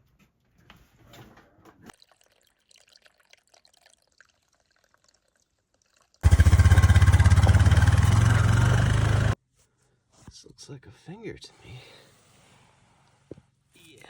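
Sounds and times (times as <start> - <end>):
engine running with fast pulse: 6.2 - 9.4.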